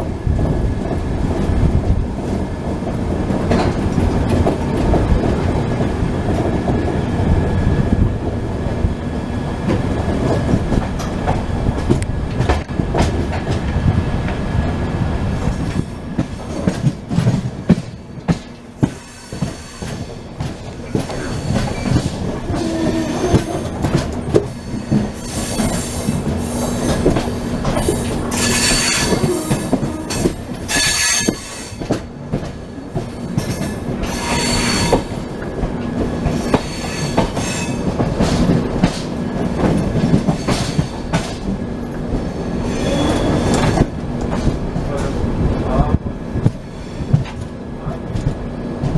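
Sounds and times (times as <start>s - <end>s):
train rumbling: 0.0s - 48.9s
rail clicks and knocks: 0.4s - 48.9s
wheel squeal: 21.1s - 31.8s, 33.0s - 35.3s, 36.2s - 38.8s, 42.4s - 43.8s.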